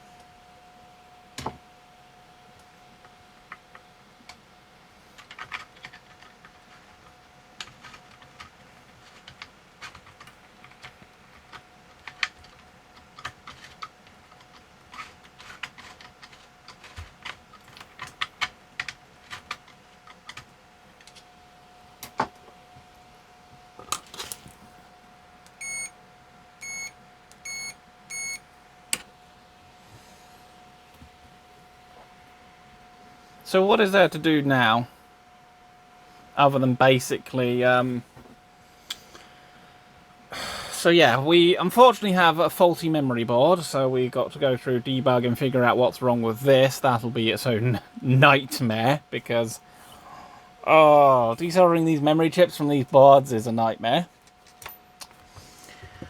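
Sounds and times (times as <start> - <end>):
faint steady hum: 0.0 - 56.0
computer keyboard typing: 7.6 - 21.2
short electronic beeps: 25.6 - 25.9, 26.6 - 28.4.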